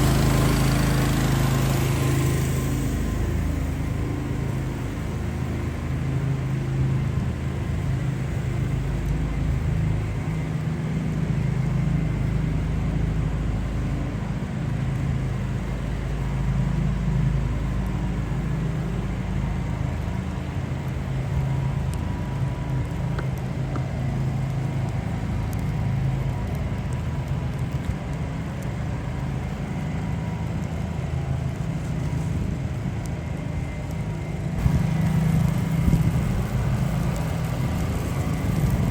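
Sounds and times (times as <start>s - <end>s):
city noise: 0.0s - 38.9s
vehicle engine humming: 0.0s - 38.9s.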